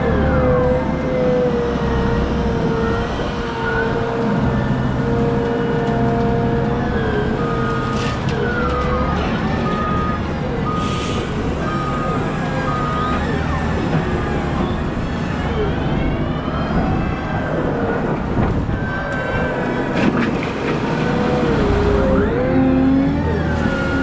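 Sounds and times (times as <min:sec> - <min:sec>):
wheel loader engine whine: 0:00.0 - 0:24.0
reversing alarm beeping: 0:06.5 - 0:17.0.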